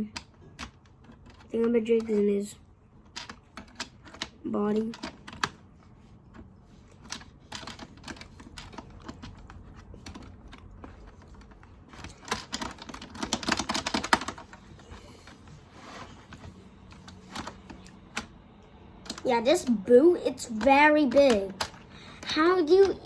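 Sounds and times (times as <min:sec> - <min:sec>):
plastic toy game clicks and taps: 0:07.0 - 0:14.5, 0:20.4 - 0:23.0.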